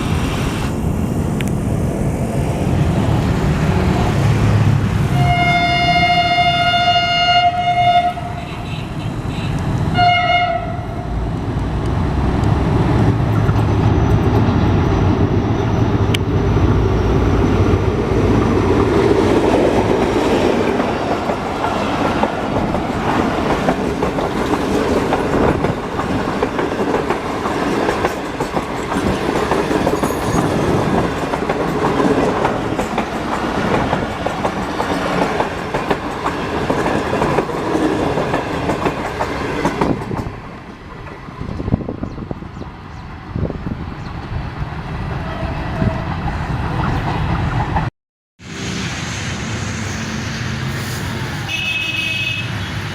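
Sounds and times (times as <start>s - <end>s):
train horn blast: 5.1s - 11.1s, 51.4s - 52.8s
train wheels clickety-clack on rails: 11.3s - 47.9s.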